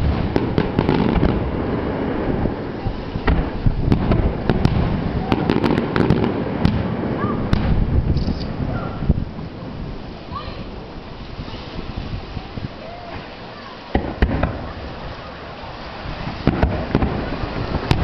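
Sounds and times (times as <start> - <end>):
low rumble of booms: 0.0 - 18.0
sharp cracks and crackles: 3.2 - 8.6, 16.3 - 18.0.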